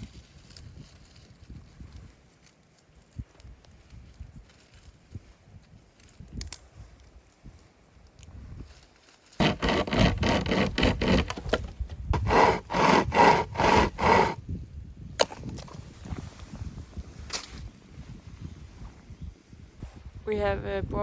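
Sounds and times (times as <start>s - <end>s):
hand saw cutting wood: 9.4s - 14.4s.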